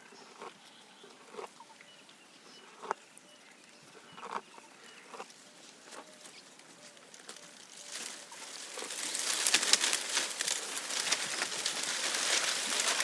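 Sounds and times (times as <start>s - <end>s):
giraffe chewing leaves: 4.0s - 13.0s.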